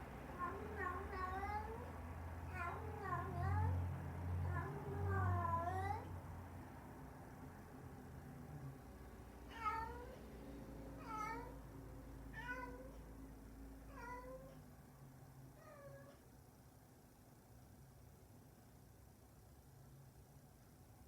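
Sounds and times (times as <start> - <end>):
cat meowing: 0.4 - 1.9, 2.5 - 3.8, 4.4 - 6.1, 9.5 - 10.2, 11.0 - 11.6, 12.3 - 13.1, 13.9 - 14.6, 15.6 - 16.2.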